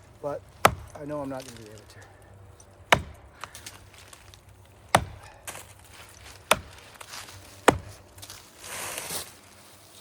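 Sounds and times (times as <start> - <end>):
axe chopping into tree trunk: 0.6 - 1.2, 2.9 - 4.1, 4.8 - 8.4.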